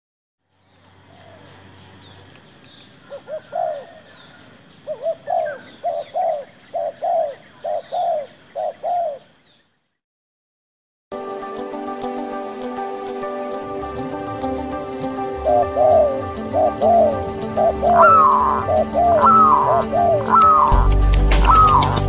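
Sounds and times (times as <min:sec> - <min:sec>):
small birds chirping: 0:00.5 - 0:10.0, 0:14.0 - 0:22.0
dove cooing: 0:03.0 - 0:09.4, 0:13.8 - 0:22.0
steady high hiss: 0:11.8 - 0:19.9.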